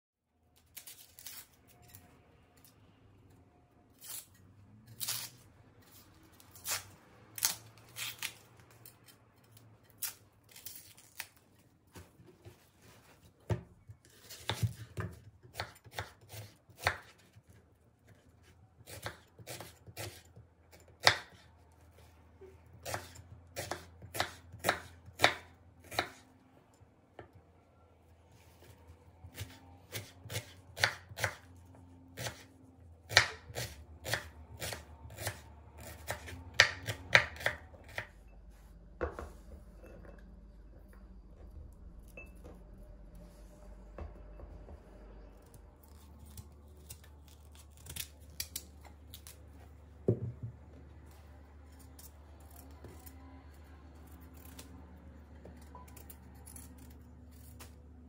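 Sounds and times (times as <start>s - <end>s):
low steady hum: 21.4s - 58.0s.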